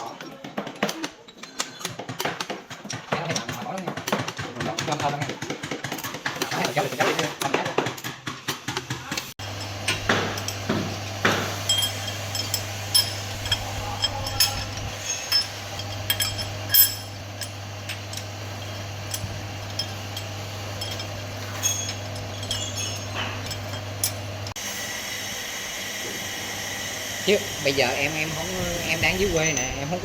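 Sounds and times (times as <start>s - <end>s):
metal tools clinking: 9.4s - 24.6s
steady low hum: 9.4s - 24.6s.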